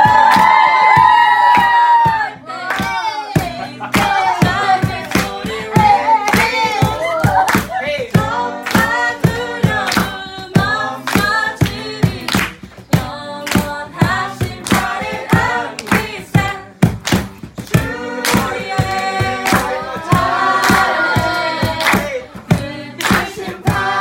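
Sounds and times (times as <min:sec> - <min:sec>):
group singing a praise song: 0:00.0 - 0:24.0
sharp percussive beat: 0:00.0 - 0:24.0.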